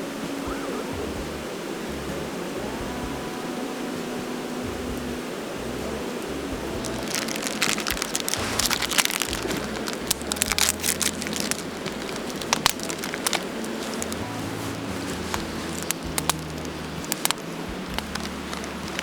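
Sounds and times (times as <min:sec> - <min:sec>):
steady hiss: 0:00.0 - 0:19.0
campfire crackling and popping: 0:04.7 - 0:19.0.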